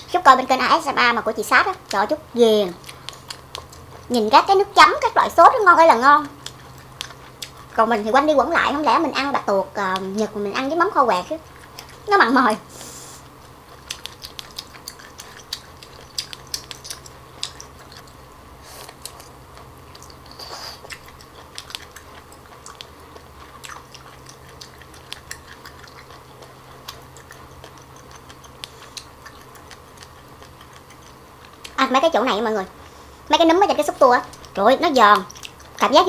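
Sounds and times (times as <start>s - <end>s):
crunchy chewing mouth clicks: 2.7s - 4.2s, 6.2s - 8.0s, 11.4s - 12.1s, 13.2s - 31.9s, 34.2s - 36.0s.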